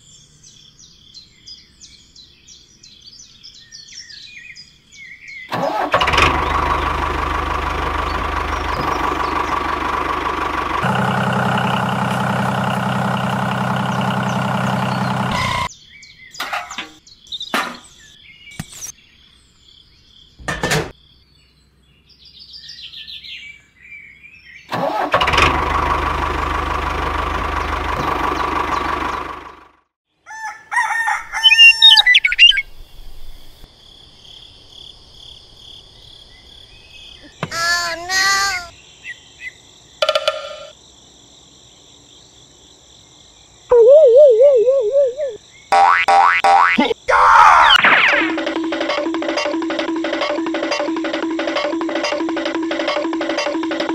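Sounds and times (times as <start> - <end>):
small motor running: 6.0 - 15.7
loud bird chirps: 31.0 - 33.0, 43.7 - 48.2.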